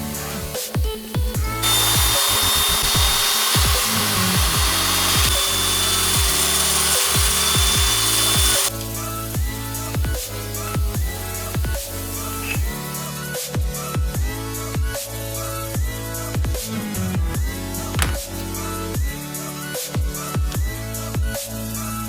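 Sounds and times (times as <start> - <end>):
power drill whining: 0.4 - 10.0, 11.0 - 13.1, 18.0 - 18.6.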